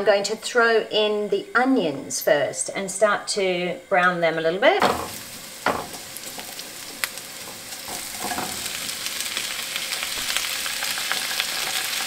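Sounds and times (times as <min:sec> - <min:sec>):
onions sizzling in oil: 0:04.6 - 0:12.0
spatula knocking on pan: 0:04.8 - 0:06.4, 0:07.4 - 0:08.8.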